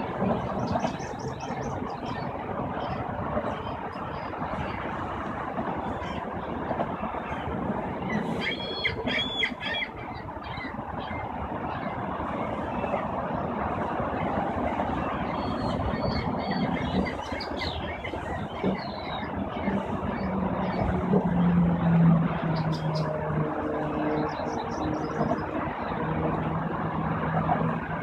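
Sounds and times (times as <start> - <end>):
steady background rumble: 0.0 - 28.0
geese calling: 7.1 - 13.1, 13.8 - 26.4.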